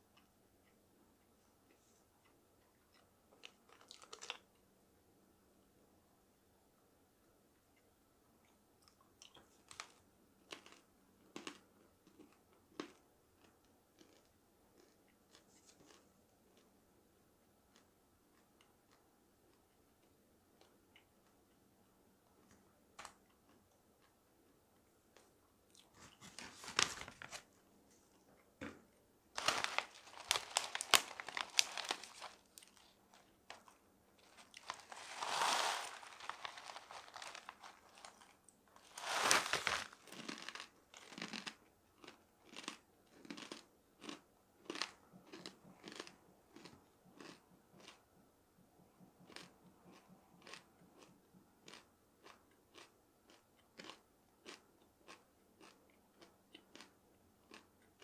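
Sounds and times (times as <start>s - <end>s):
crunching and chewing dried food: 1.7s - 4.7s, 7.8s - 16.8s, 17.6s - 21.6s, 22.3s - 28.5s, 29.4s - 48.2s, 49.0s - 58.0s
paper bag crinkling: 26.0s - 27.4s, 29.4s - 40.6s.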